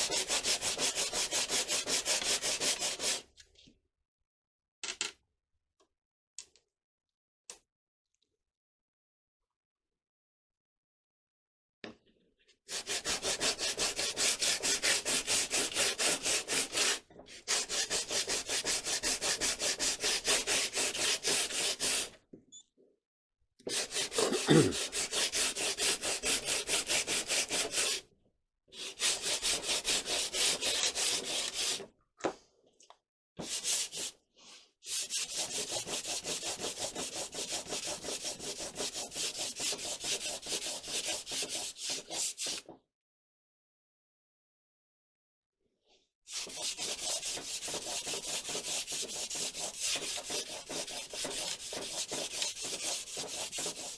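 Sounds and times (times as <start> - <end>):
hand sanding wood: 0.0 - 3.2, 12.7 - 22.1, 23.7 - 28.0, 28.8 - 31.8, 33.4 - 34.2, 34.8 - 42.6, 46.3 - 53.9.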